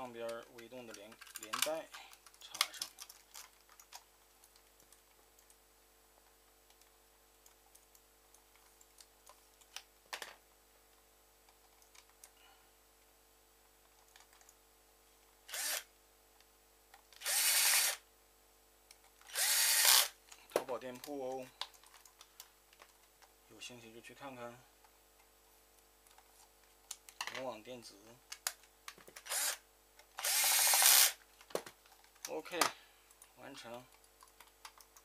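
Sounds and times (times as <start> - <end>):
plastic parts clicking: 0.3 - 4.6
electric screwdriver running: 15.5 - 15.9, 17.2 - 18.0, 19.3 - 20.2, 29.2 - 29.6, 30.2 - 31.2.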